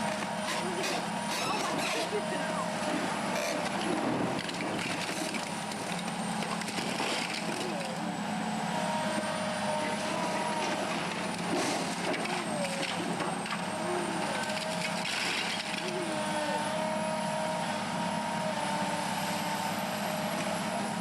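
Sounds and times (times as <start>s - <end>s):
heavy diesel machinery running: 0.0s - 21.0s.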